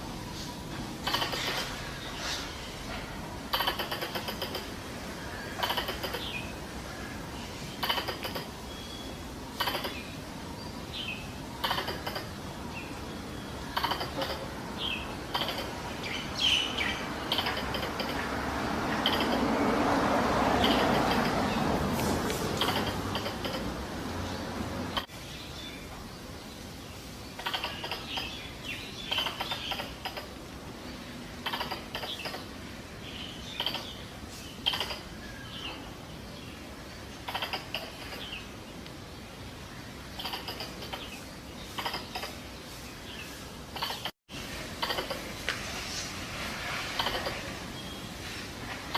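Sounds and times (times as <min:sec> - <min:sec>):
squirrel chattering clicks: 0:01.0 - 0:01.7, 0:03.5 - 0:04.8, 0:05.6 - 0:06.5, 0:07.8 - 0:08.6, 0:09.6 - 0:10.1, 0:11.6 - 0:12.4, 0:13.7 - 0:14.5, 0:15.2 - 0:18.3, 0:19.0 - 0:19.4, 0:20.6 - 0:21.5, 0:22.6 - 0:23.8, 0:24.9 - 0:25.1, 0:27.4 - 0:28.4, 0:29.1 - 0:30.4, 0:31.4 - 0:32.5, 0:33.5 - 0:34.0, 0:34.6 - 0:35.1, 0:37.2 - 0:38.4, 0:40.2 - 0:42.4, 0:43.7 - 0:44.1, 0:44.8 - 0:45.3, 0:47.0 - 0:47.4.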